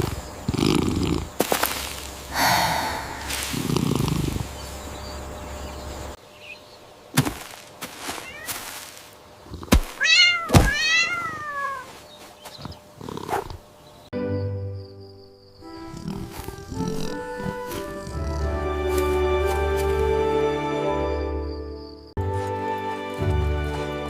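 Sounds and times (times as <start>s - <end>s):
cat meowing: 8.2s - 8.6s, 10.0s - 11.9s.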